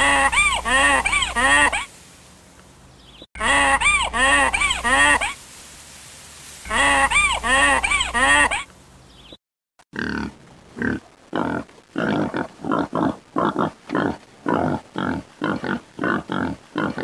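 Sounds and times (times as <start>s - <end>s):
high honking calls: 0.0s - 1.9s, 3.4s - 5.4s, 6.6s - 8.8s
pig grunting: 10.0s - 17.0s.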